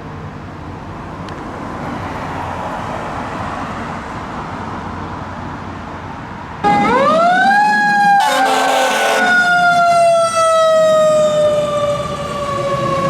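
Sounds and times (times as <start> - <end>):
emergency siren wailing: 6.6 - 13.0
horn blast: 8.1 - 9.4.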